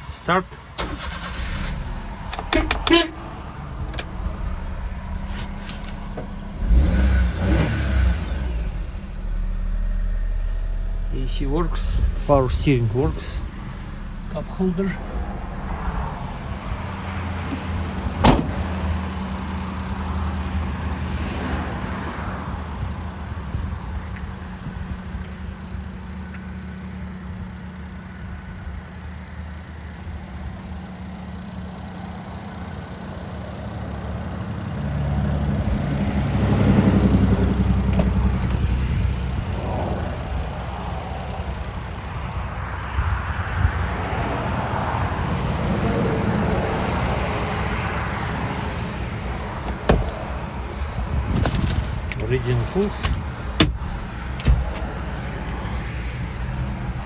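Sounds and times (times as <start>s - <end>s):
small engine idling: 0.8s - 21.0s, 22.8s - 43.0s.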